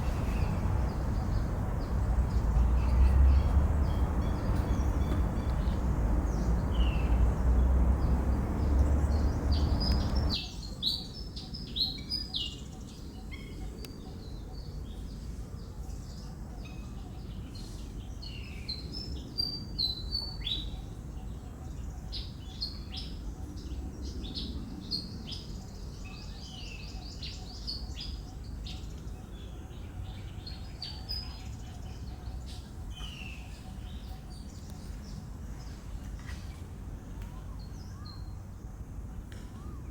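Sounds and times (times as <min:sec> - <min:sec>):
birds chirping: 0:00.0 - 0:10.4
loud low rumble: 0:00.0 - 0:10.4.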